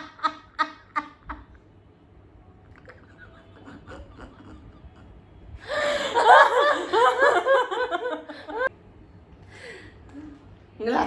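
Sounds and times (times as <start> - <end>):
person laughing: 2.9 - 5.2.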